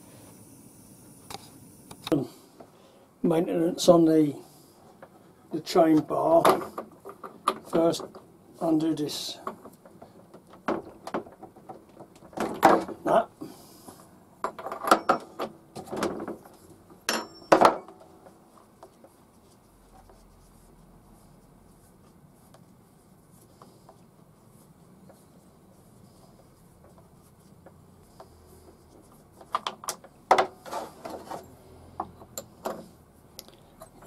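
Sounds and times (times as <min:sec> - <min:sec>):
tools knocking and clattering: 0:09.5 - 0:13.0, 0:14.4 - 0:18.4, 0:29.4 - 0:31.4.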